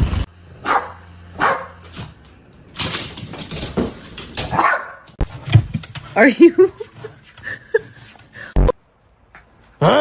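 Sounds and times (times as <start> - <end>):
dog barking: 0.6 - 1.8, 4.5 - 5.1.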